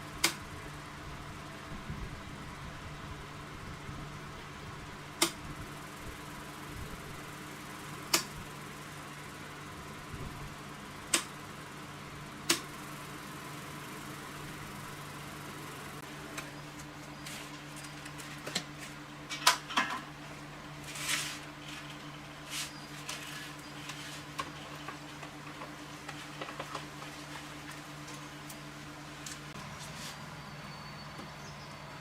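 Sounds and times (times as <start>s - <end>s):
steady low hum: 0.0s - 32.0s
brief scrape: 20.9s - 21.9s.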